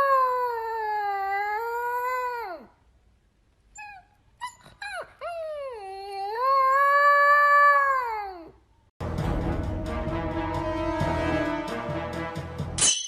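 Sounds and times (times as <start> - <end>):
music: 9.0 - 12.9.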